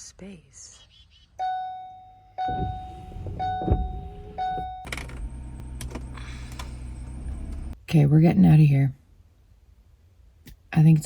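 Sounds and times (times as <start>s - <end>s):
warning chime dinging: 1.4s - 5.4s
engine starting and running: 2.4s - 7.8s
thump: 2.5s - 4.7s.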